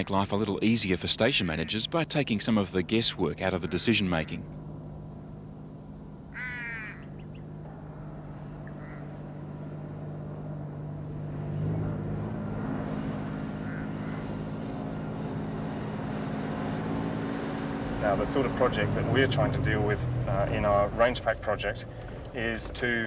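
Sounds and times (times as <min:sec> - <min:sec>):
vehicle engine accelerating: 0:02.0 - 0:23.0
short squawk: 0:06.3 - 0:07.4, 0:08.6 - 0:09.2.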